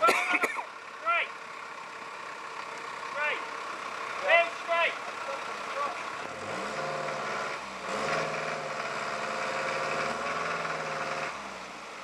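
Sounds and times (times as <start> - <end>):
engine revving: 2.9 - 12.0.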